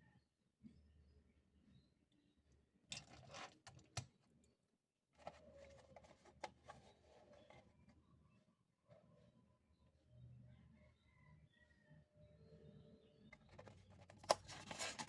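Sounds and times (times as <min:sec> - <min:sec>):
packaging rustling: 0:14.0 - 0:15.0.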